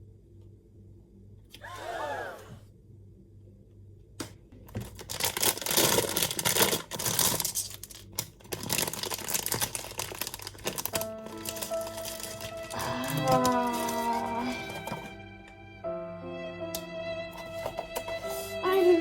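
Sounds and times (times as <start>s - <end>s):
packaging rustling and tearing: 4.7s - 15.2s
music with held notes: 10.7s - 19.0s.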